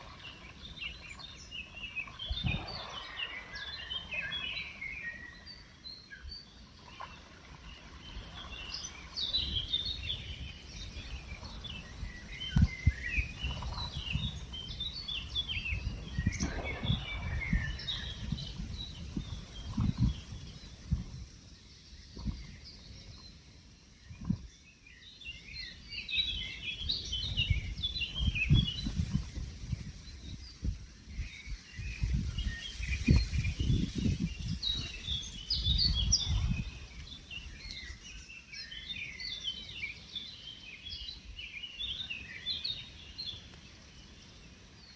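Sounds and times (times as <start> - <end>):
songbirds chirping and trilling: 0.0 - 44.9
low gusty rumbles: 15.7 - 21.2.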